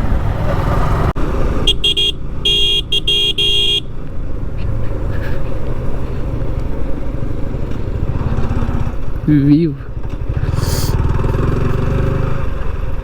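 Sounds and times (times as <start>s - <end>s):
engine and road rumble: 0.0s - 13.0s
vehicle horn tooting: 1.6s - 3.9s.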